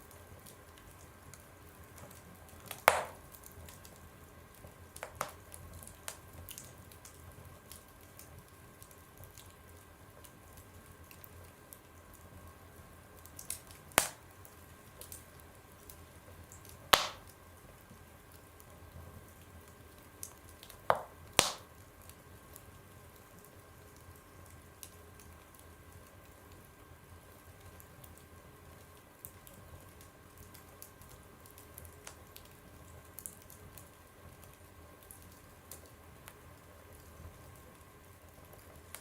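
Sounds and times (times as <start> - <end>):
fire crackling: 0.0 - 39.0
loud pops from fire: 2.0 - 3.8, 5.0 - 6.7, 13.3 - 15.2, 16.6 - 17.4, 20.6 - 21.8
fire hissing: 2.6 - 3.3, 13.8 - 14.4, 17.0 - 17.3, 20.9 - 21.7.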